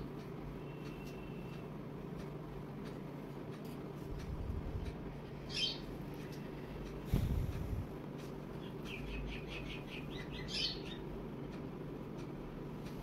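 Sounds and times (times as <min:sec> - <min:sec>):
low background noise: 0:00.0 - 0:13.0
bird chirping: 0:05.5 - 0:05.9, 0:08.6 - 0:11.1.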